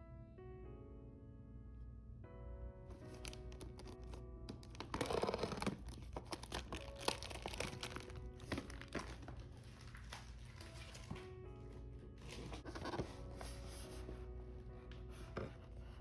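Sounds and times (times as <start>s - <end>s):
soft background music: 0.0s - 16.0s
packaging crinkling: 2.9s - 14.2s.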